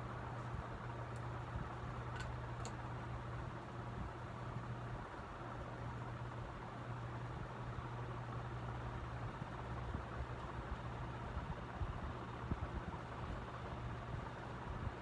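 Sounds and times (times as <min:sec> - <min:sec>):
ceiling fan running: 0:00.0 - 0:15.0.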